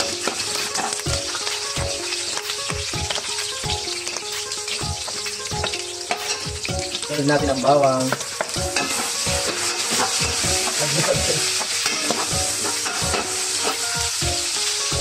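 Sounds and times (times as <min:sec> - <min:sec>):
onions sizzling in hot oil: 0:00.0 - 0:15.0
metal ladle scraping a wok: 0:08.7 - 0:14.0.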